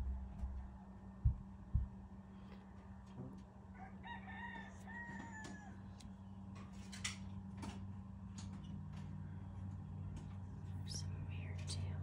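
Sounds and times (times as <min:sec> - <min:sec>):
rooster crowing: 0:03.7 - 0:06.0.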